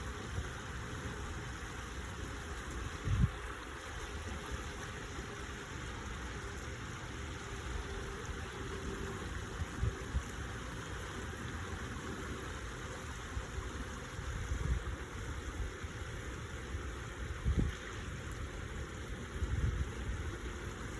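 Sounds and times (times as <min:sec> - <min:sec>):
stream water running: 0:00.0 - 0:20.9
wind buffeting microphone: 0:02.6 - 0:03.6, 0:09.2 - 0:20.9.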